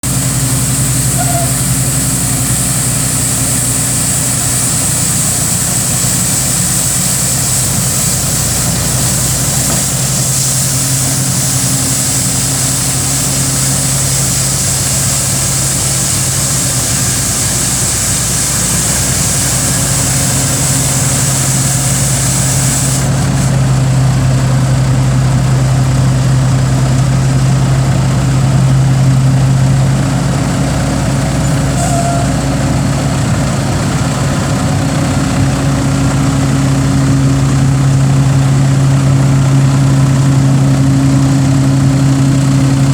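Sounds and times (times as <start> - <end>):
high hiss: 0.0 - 23.7
truck engine idling: 0.0 - 42.9.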